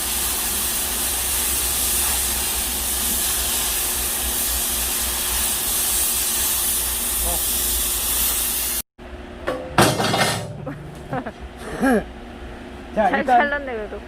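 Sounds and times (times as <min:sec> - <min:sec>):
cutting torch hissing: 0:00.0 - 0:08.9.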